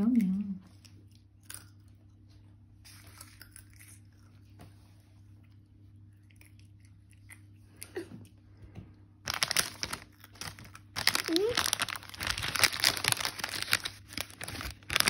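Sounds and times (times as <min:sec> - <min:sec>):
toddler chewing crisps: 0:02.8 - 0:04.6, 0:09.2 - 0:15.0
crisp packet crackling rustle: 0:09.2 - 0:15.0.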